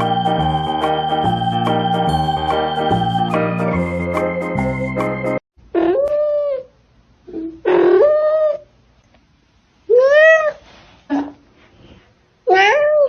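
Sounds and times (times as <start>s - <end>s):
cat meowing: 9.9s - 10.6s, 12.5s - 13.0s.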